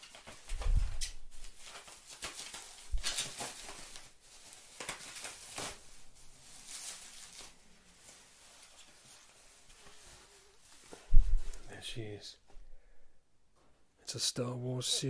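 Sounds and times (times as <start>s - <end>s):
cardboard and paper rustling: 0.0s - 11.7s.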